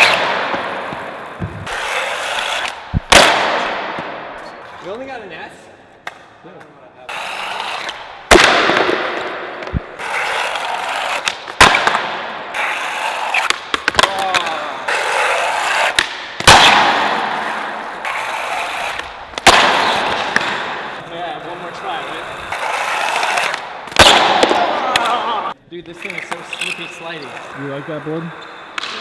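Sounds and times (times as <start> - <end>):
skateboard slapping on ground: 0.0 - 4.5, 7.1 - 26.5
steel bearings rolling on pavement: 26.0 - 28.8.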